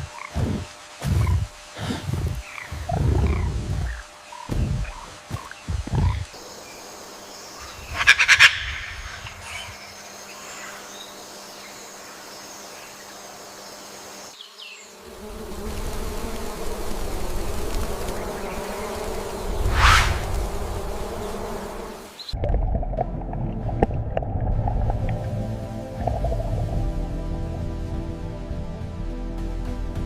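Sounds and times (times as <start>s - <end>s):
insects buzzing: 0.0s - 22.4s
low rumble: 22.4s - 29.0s.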